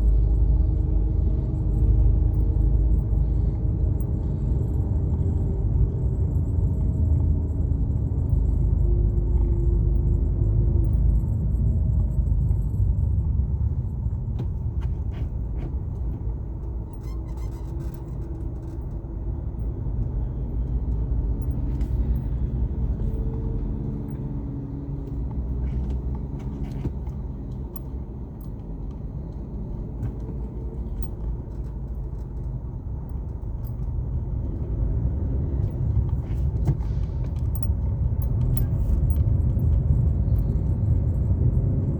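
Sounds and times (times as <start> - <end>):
car road and engine rumble: 0.0 - 41.9
light rattling clicks: 14.4 - 34.7.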